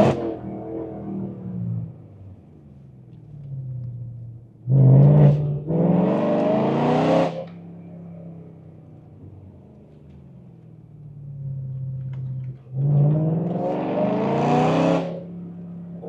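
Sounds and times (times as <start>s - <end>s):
car engine revving from cabin: 4.6s - 7.6s, 12.6s - 15.3s.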